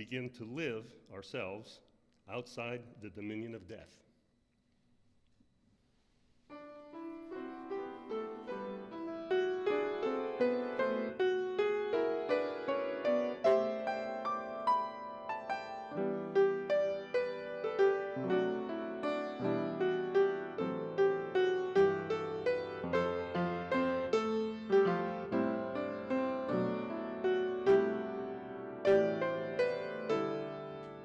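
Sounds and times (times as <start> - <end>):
solo piano playing: 6.5 - 31.0.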